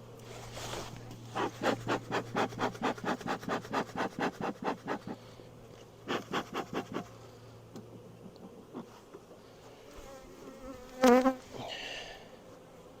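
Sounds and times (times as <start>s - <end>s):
tool scraping wood: 0.2s - 5.3s, 6.1s - 7.1s.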